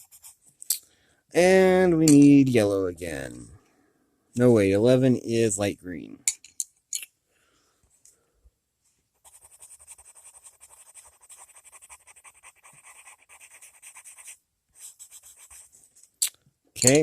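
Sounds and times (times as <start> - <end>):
colored pencil shading on paper: 0.0 - 0.4, 9.2 - 15.8.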